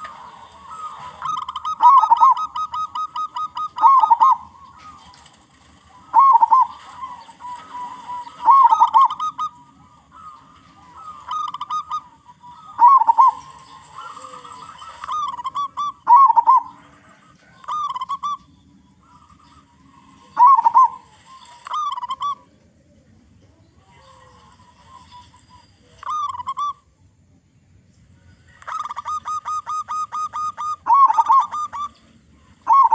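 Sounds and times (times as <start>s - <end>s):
dove cooing: 0.0s - 26.9s, 28.5s - 32.9s.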